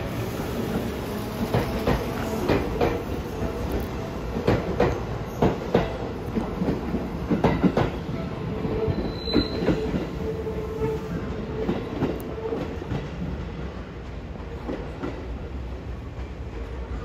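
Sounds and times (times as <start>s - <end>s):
train rumbling: 0.0s - 17.0s
train wheels clicking over rail joints: 0.3s - 8.1s
train wheel squeal: 4.9s - 5.8s, 8.6s - 12.8s.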